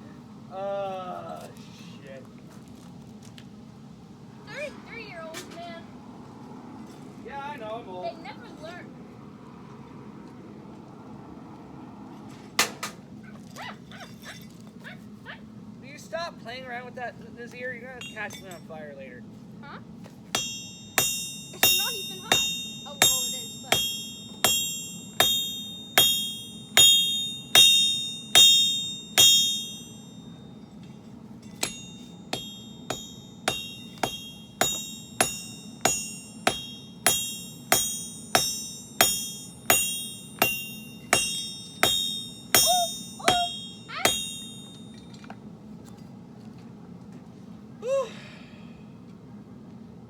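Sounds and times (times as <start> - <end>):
steady low hum: 0.0 - 50.0
hammer striking steel on anvil: 12.6 - 13.1, 18.0 - 18.7, 20.3 - 45.4.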